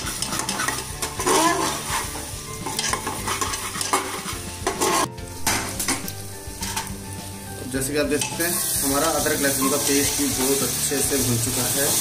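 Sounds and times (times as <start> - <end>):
metal spatula scraping a pan: 0.0 - 7.0
onions frying in oil: 0.0 - 12.0.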